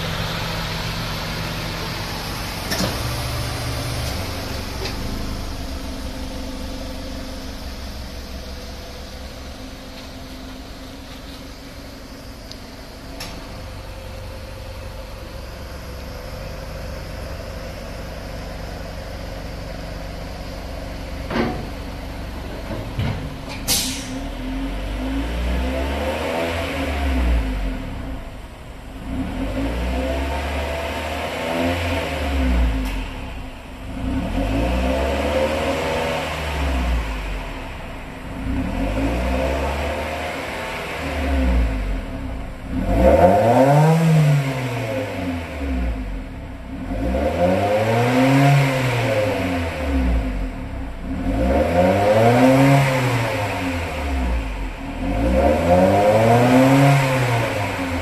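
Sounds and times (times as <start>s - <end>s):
car engine idling: 0.0s - 25.6s, 27.0s - 30.5s, 32.4s - 47.0s, 48.0s - 58.0s
engine revving: 23.7s - 28.3s, 29.0s - 58.0s.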